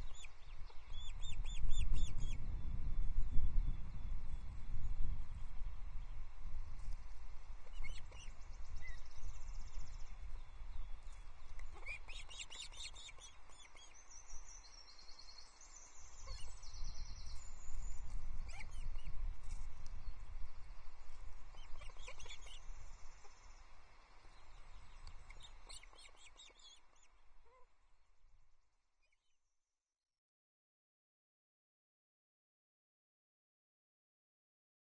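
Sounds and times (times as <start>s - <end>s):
wind buffeting microphone: 0.0s - 11.9s, 16.2s - 23.2s
high chirping bird calls: 11.5s - 14.5s, 15.4s - 19.2s, 21.5s - 23.4s, 25.0s - 27.1s.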